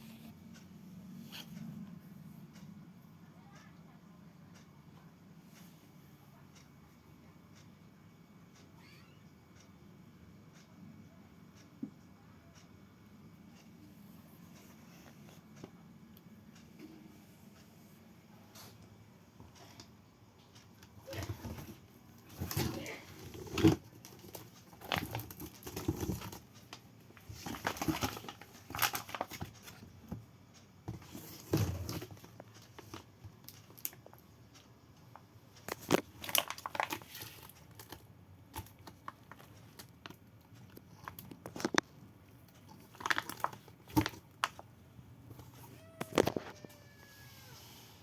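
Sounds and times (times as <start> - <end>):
packaging crinkling and tearing: 27.5 - 29.6, 35.7 - 38.0, 42.7 - 44.6.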